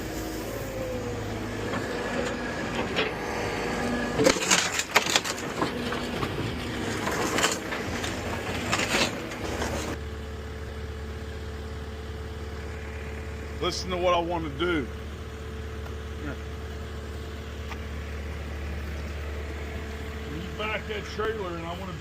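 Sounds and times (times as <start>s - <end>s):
excavator diesel engine: 0.0s - 22.0s
rubble crunching and crashing: 1.4s - 10.0s.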